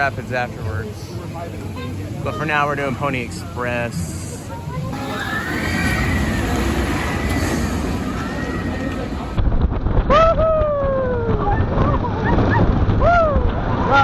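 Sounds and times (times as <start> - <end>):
roller coaster rumble: 0.0 - 12.5
riders screaming: 4.9 - 9.4.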